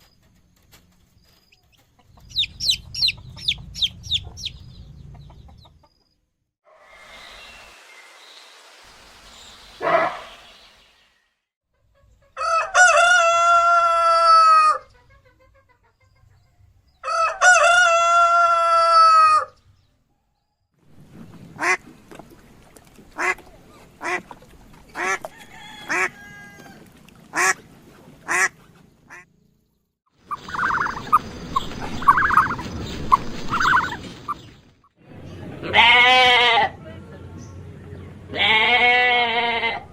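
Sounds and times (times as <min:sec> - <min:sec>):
poultry calling: 0:09.8 - 0:10.5, 0:24.9 - 0:27.6, 0:30.2 - 0:34.5, 0:35.6 - 0:36.8, 0:38.3 - 0:39.9.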